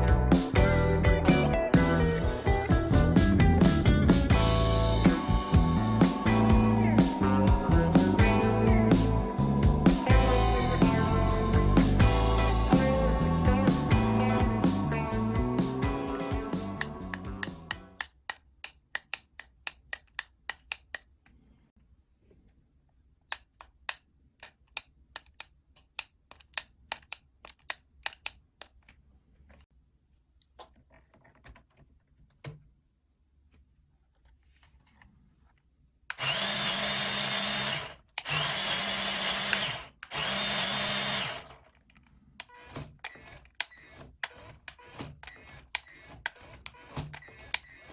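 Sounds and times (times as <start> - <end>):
electric motor gear whine: 36.2 - 41.5.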